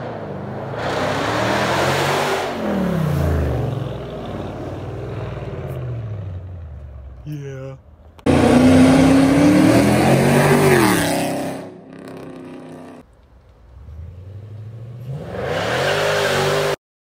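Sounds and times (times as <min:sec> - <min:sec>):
car engine revving: 0:00.0 - 0:07.0, 0:08.2 - 0:13.1.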